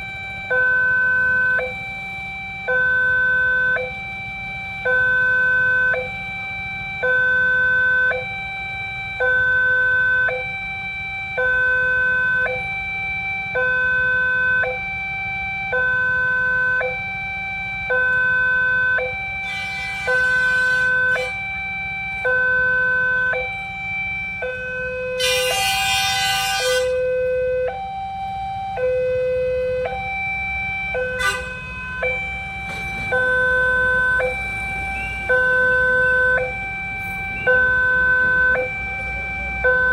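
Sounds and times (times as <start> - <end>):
two-tone crossing alarm: 0.0 - 39.9
short bursts of noise: 19.4 - 21.4.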